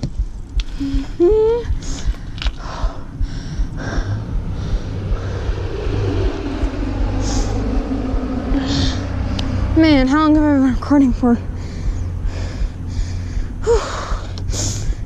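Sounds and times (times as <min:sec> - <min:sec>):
small engine droning: 0:00.0 - 0:15.0
wind noise: 0:00.0 - 0:15.0
brief rising tone: 0:04.3 - 0:09.8.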